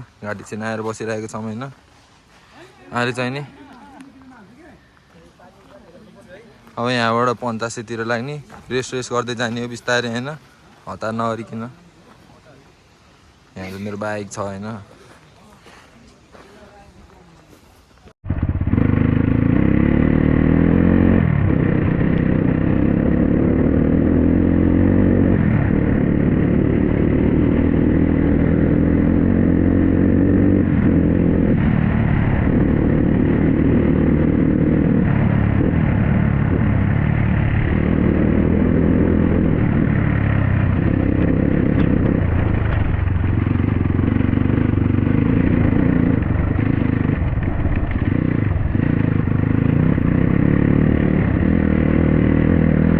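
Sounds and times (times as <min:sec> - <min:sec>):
dirt bike engine revving: 0:18.3 - 0:52.9
rattling and scraping: 0:40.7 - 0:49.3.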